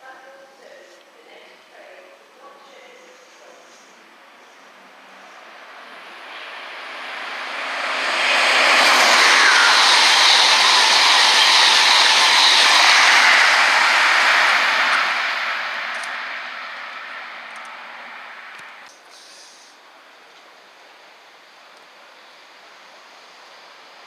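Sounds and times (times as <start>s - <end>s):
train passing at speed: 3.0s - 18.9s.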